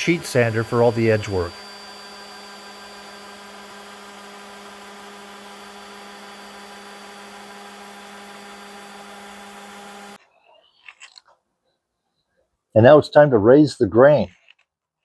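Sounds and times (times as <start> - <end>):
electric sander on wood: 0.0 - 10.2.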